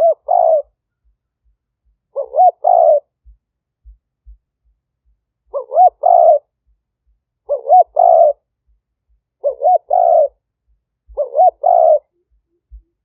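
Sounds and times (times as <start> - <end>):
dove cooing: 0.0 - 0.8, 2.1 - 3.3, 5.5 - 6.5, 7.4 - 8.4, 9.4 - 10.4, 11.0 - 13.0.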